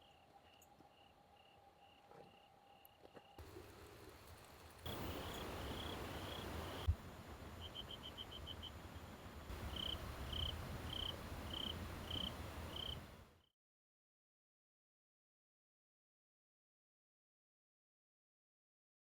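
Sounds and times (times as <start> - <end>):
cricket chirping: 0.0 - 3.4, 4.9 - 13.1
steady hiss: 4.9 - 13.3.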